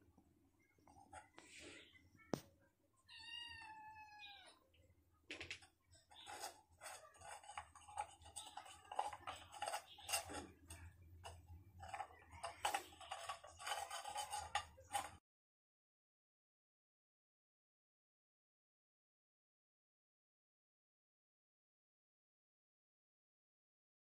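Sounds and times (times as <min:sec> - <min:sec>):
cat meowing: 0:03.1 - 0:04.6
irregular clicking and rustling: 0:05.3 - 0:15.2.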